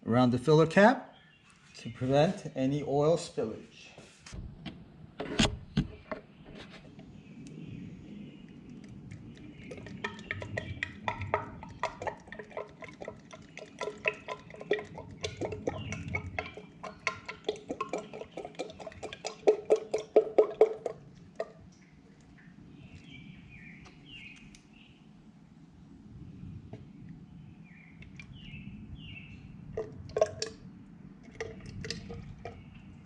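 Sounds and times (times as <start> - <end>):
motor oil glugging from bottle: 8.6 - 24.4, 28.0 - 33.0.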